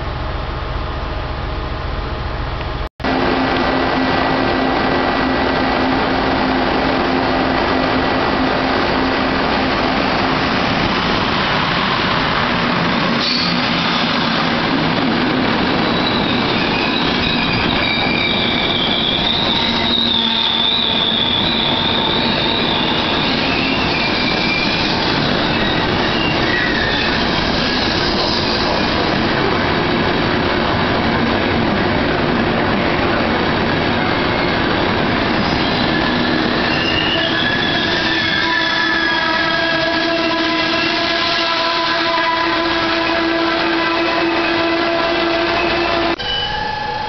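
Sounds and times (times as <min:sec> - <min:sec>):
train wheels rumbling on rails: 0:00.0 - 0:47.0
high metallic squeal: 0:13.2 - 0:14.2, 0:15.8 - 0:29.0, 0:35.4 - 0:40.9, 0:45.5 - 0:47.0.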